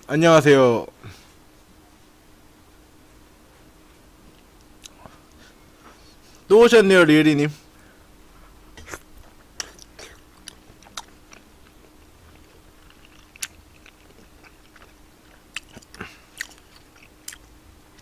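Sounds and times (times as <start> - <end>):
quiet chewing: 3.6 - 6.5, 8.3 - 18.0
mouth smacks and clicks: 4.8 - 5.1, 8.8 - 11.8.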